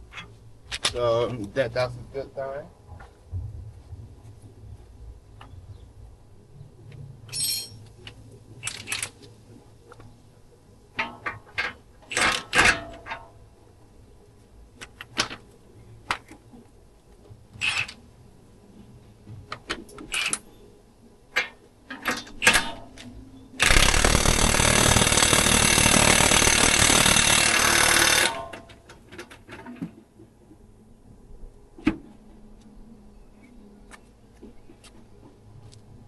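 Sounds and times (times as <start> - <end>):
tools clicking and knocking: 10.9 - 13.4, 19.5 - 20.5, 21.3 - 30.0
impact wrench running: 23.6 - 28.6.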